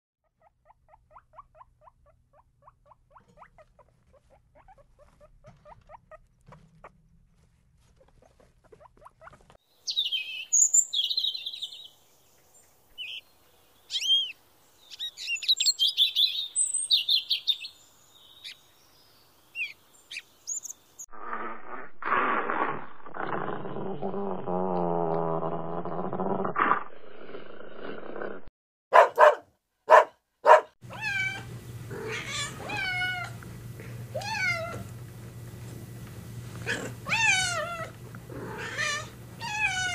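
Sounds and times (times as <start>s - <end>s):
guinea pigs squeaking: 0.2s - 7.0s, 7.8s - 9.6s
low animal sound: 21.2s - 28.4s.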